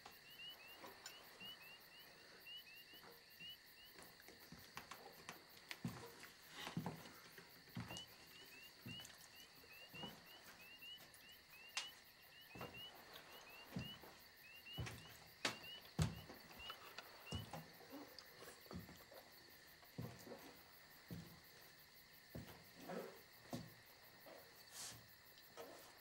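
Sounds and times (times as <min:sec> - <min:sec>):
frogs peeping: 0:00.0 - 0:26.0
sharp knocks and thuds: 0:12.5 - 0:18.0.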